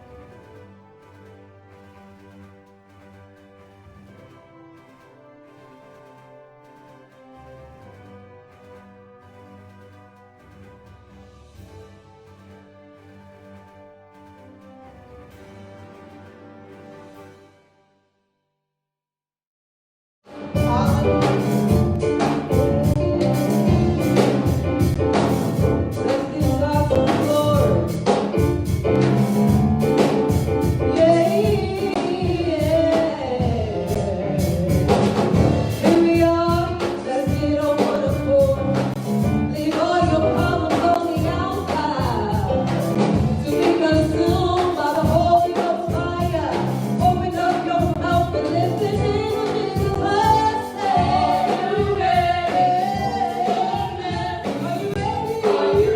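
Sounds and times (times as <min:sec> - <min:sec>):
band with steady drumbeat: 0:20.4 - 0:55.9
group of voices singing: 0:20.5 - 0:24.9, 0:25.9 - 0:28.0, 0:30.9 - 0:55.9.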